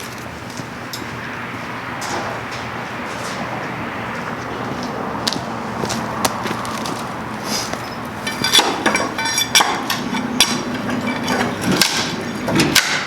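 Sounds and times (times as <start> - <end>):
hand tools knocking and clinking: 7.7 - 13.0.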